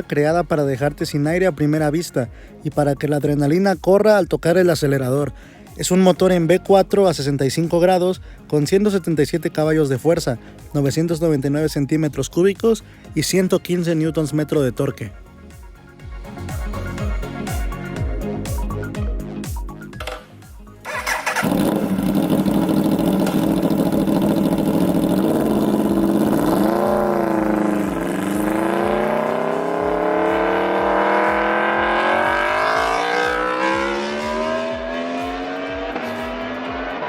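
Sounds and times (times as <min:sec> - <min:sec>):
motorcycle engine revving: 0:20.8 - 0:37.0.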